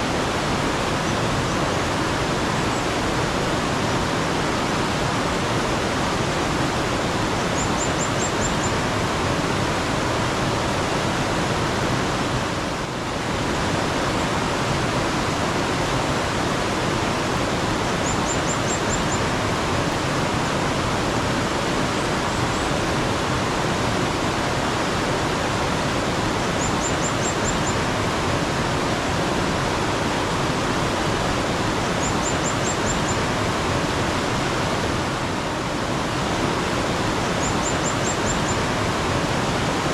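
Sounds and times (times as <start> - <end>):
stream water flowing: 0.0 - 39.9
small bird chirping: 7.6 - 8.8, 18.0 - 19.2, 26.6 - 27.8, 32.0 - 33.2, 37.4 - 38.6.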